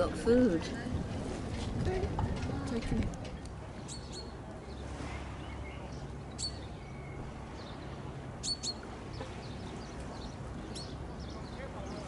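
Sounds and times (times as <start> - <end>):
small birds chirping: 3.4 - 12.0.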